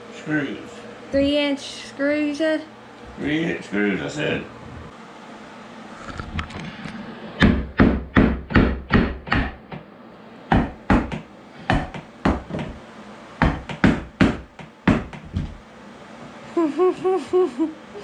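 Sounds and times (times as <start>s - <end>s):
hammer striking wood: 7.4s - 9.8s, 10.5s - 12.8s, 13.4s - 15.4s.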